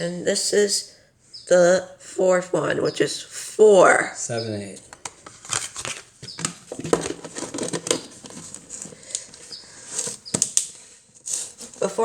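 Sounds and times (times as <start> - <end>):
coffee scoop rustling and scraping: 4.8 - 12.0.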